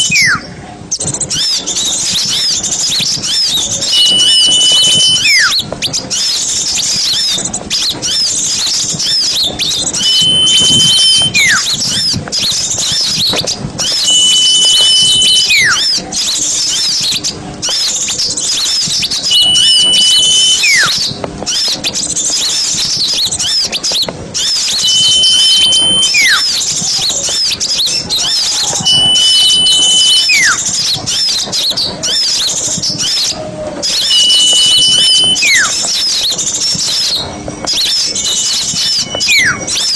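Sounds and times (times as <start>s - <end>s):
flock of small birds chirping: 0.0s - 39.9s
high whistle with falling note: 3.8s - 5.6s, 9.9s - 11.7s, 13.8s - 15.9s, 19.3s - 21.0s, 24.6s - 26.5s, 28.4s - 30.7s, 33.8s - 36.0s, 37.7s - 39.9s.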